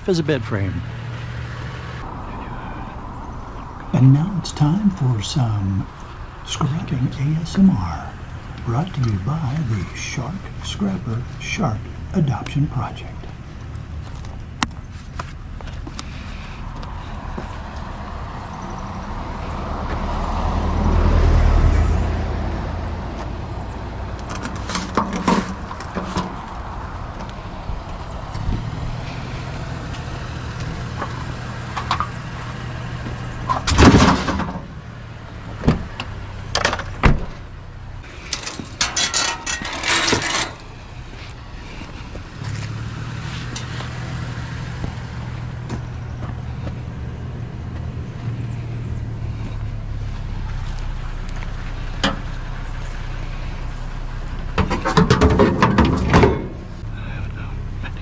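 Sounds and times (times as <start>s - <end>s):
vehicle passing: 0.0s - 58.0s
scrap metal knocking and rattling: 24.3s - 26.6s, 33.5s - 34.7s, 38.1s - 40.9s, 54.5s - 56.8s.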